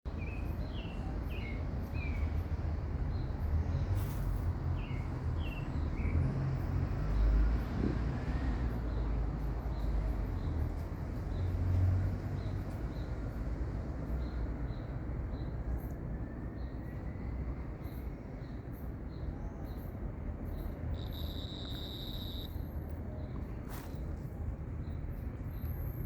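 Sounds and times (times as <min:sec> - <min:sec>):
songbird chirping: 0:08.3 - 0:24.2.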